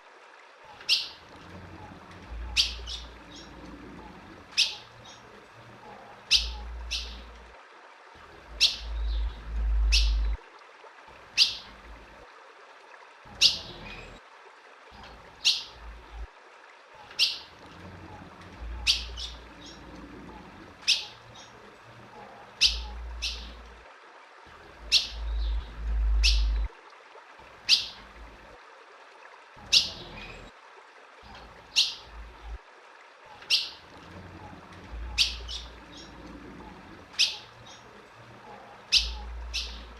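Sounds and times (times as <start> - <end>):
bird call notes: 6.3 - 7.3, 8.6 - 10.4, 22.6 - 23.6, 24.9 - 26.7
low rumble: 8.8 - 10.4, 25.2 - 26.7.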